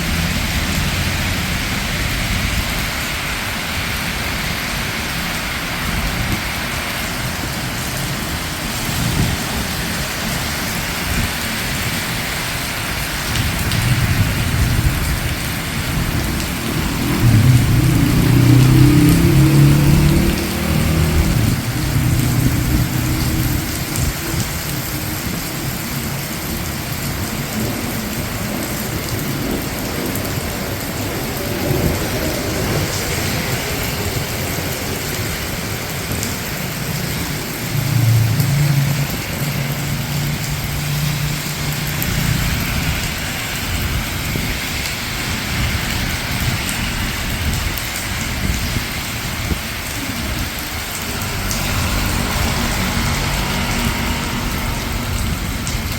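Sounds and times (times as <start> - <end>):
rain on hard surfaces: 0.0 - 55.9
traffic on wet road: 0.0 - 55.9
low rumble: 13.3 - 25.4, 48.4 - 55.9.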